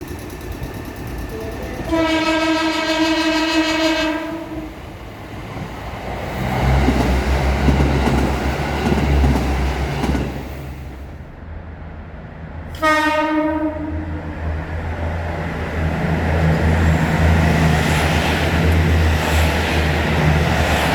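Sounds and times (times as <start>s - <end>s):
diesel railcar engine drone: 0.0s - 20.9s
train wheels rumbling: 0.0s - 20.9s
train horn blast: 1.3s - 4.8s, 12.8s - 14.2s.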